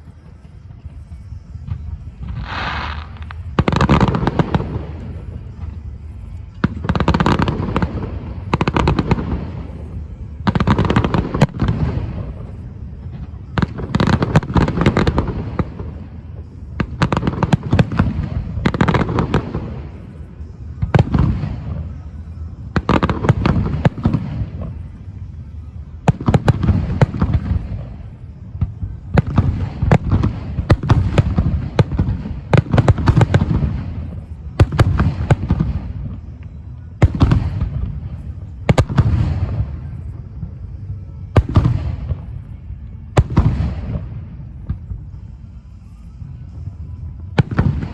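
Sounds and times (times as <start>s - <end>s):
fireworks booming: 0.0s - 25.1s, 25.9s - 45.2s
fireworks crackling: 0.0s - 47.9s.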